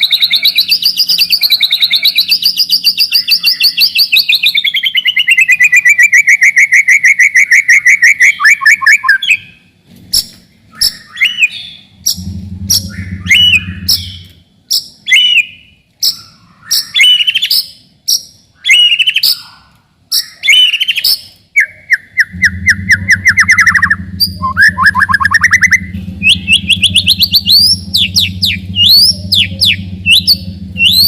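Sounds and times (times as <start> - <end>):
bird singing: 0.0 - 31.0
steady low hum: 9.5 - 17.0, 21.4 - 31.0.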